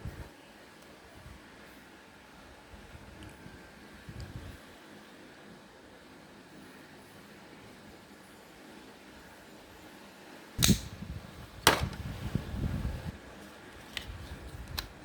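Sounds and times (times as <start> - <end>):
sharp knocks on plastic: 11.7 - 12.0.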